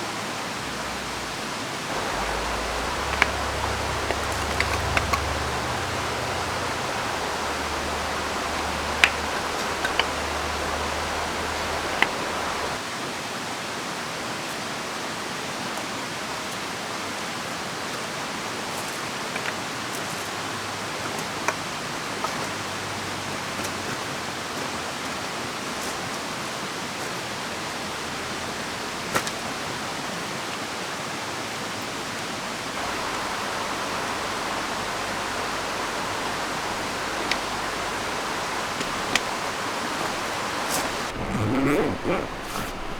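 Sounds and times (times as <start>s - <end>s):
river flowing: 0.0s - 12.8s, 27.7s - 42.9s
rain: 0.0s - 42.9s.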